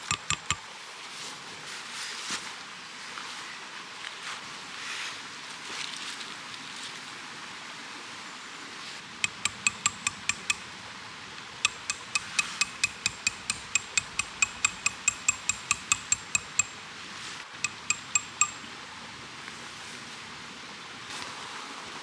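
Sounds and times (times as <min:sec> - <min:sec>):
rapid light metallic taps: 0:00.0 - 0:00.7, 0:09.2 - 0:16.8, 0:17.6 - 0:18.7.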